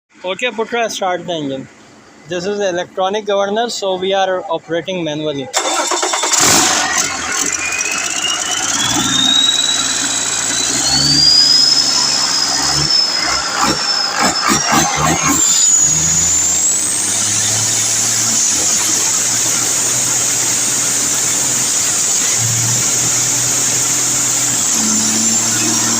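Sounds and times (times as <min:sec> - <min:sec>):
diesel engine running: 0:05.6 - 0:25.9
turbocharger whine: 0:05.6 - 0:25.9
uneven low pulses: 0:08.4 - 0:25.9.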